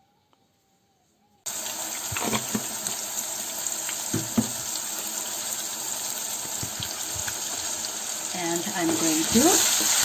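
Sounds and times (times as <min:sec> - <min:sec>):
paste sizzling in hot oil: 0:01.5 - 0:10.0.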